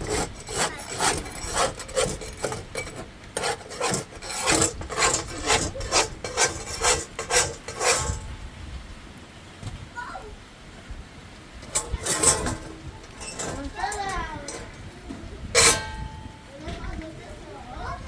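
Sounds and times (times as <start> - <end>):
rhythmic rasping strokes: 0.0 - 8.3, 11.6 - 16.4.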